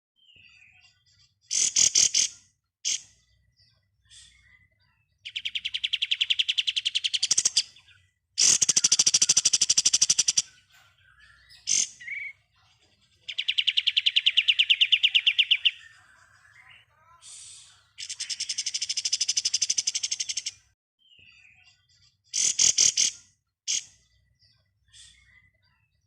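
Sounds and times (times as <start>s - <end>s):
songbird rattling trills: 8.4s - 12.3s.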